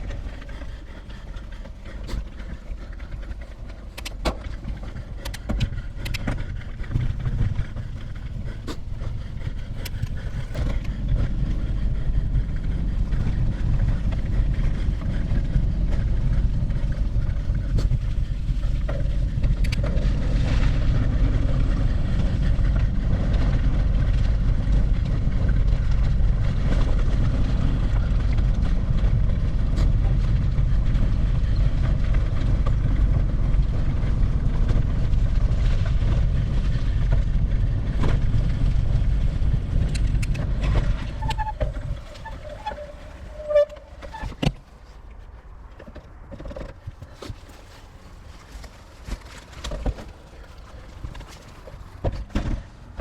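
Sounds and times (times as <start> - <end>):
steady low rumble: 0.0 - 53.0
sharp clicks: 3.9 - 4.4.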